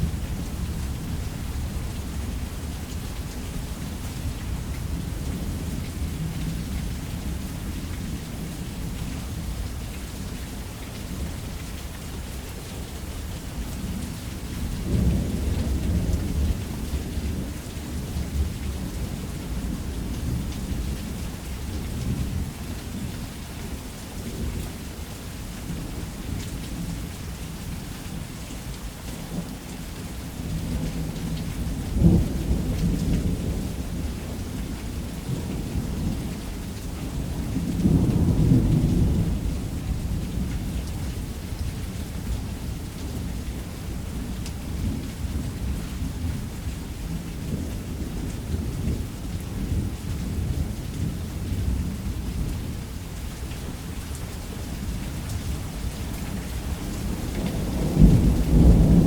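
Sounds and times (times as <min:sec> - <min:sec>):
heavy rain: 0:00.0 - 0:59.0
rumbling thunder: 0:37.2 - 0:40.6, 0:56.5 - 0:59.0.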